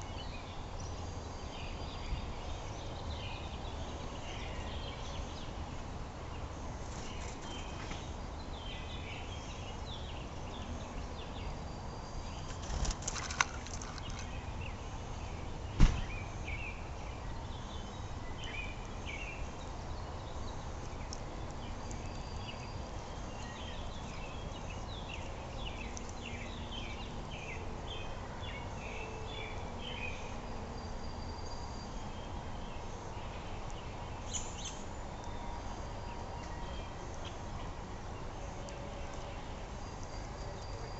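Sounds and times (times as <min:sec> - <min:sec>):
small birds chirping: 0:00.0 - 0:40.9
sharp knock: 0:15.8 - 0:16.1.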